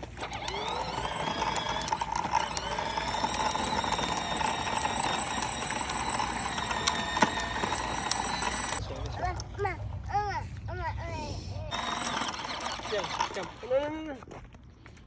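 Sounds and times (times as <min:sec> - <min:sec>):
small motor whining: 0:00.0 - 0:09.1, 0:11.7 - 0:13.8.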